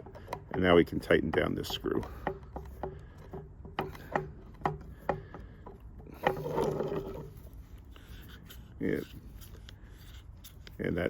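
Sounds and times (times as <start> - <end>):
rubbing and scraping: 0.0 - 11.0.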